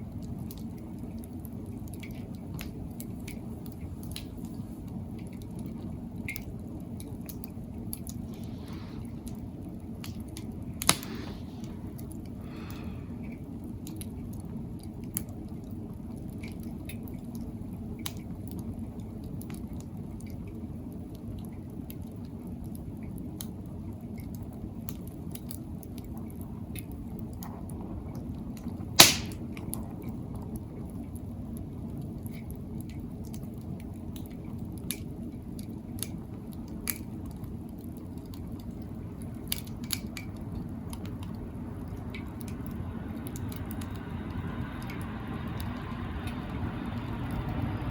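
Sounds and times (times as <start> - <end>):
fire crackling and popping: 0.0 - 47.9
fire rumbling: 0.0 - 47.9.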